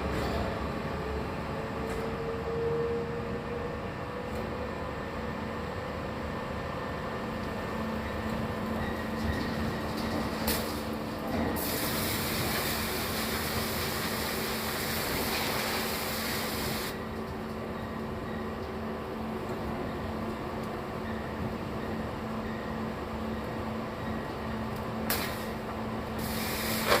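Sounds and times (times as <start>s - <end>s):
welding arc sizzling: 11.6s - 17.0s, 26.2s - 27.0s.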